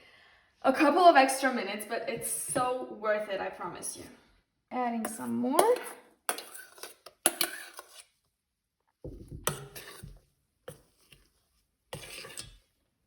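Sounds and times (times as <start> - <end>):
spatula scraping through batter: 5.0 - 8.4, 9.4 - 13.0.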